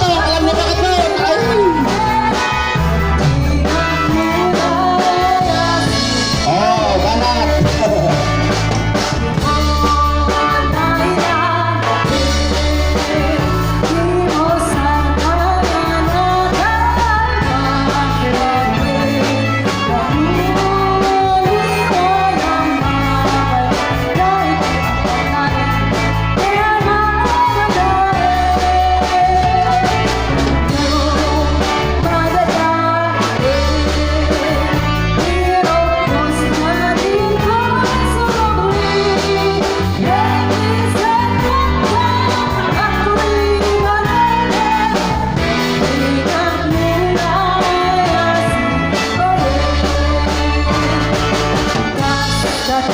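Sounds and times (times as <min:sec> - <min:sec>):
heavy steady bass: 0:00.0 - 0:52.5
guitar: 0:00.0 - 0:52.9
person singing: 0:00.0 - 0:52.9.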